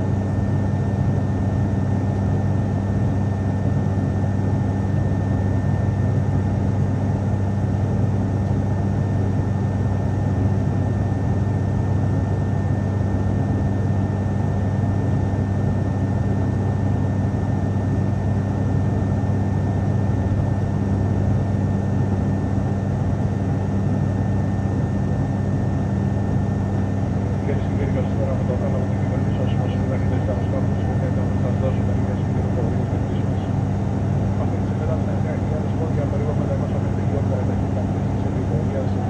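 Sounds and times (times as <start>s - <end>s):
propeller hum: 25.5s - 39.0s
faint high whine: 25.7s - 39.0s.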